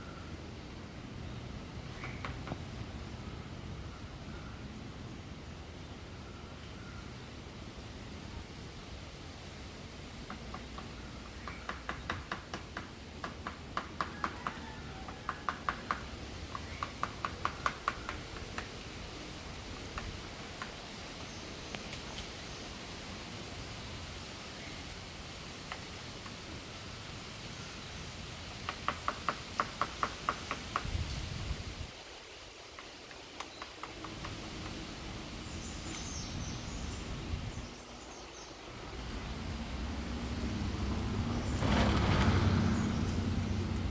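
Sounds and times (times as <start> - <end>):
outdoor background noise: 0.0 - 43.9
woodpecker pecking wood: 10.3 - 18.8, 19.9 - 20.8, 28.5 - 30.9, 32.8 - 34.8.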